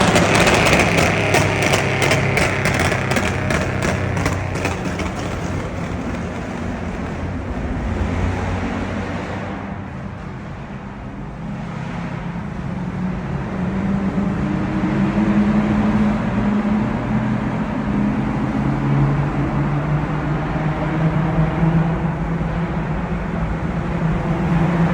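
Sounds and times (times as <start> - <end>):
car engine revving: 0.0 - 24.9.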